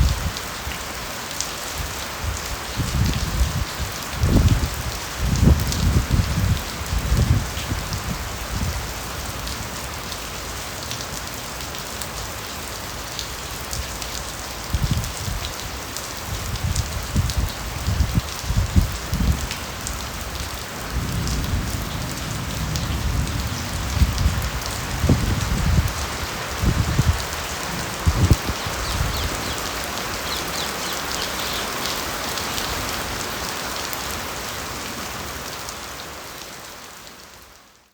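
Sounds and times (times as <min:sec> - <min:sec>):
rain hissing: 0:00.0 - 0:37.9.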